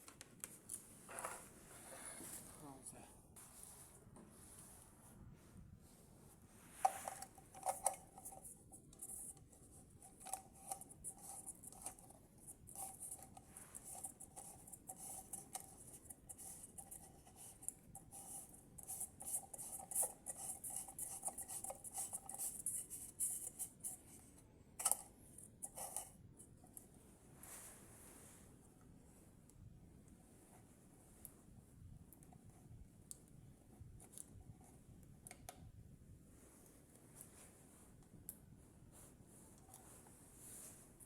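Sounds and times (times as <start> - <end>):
hands handling lamp parts: 6.7 - 24.0.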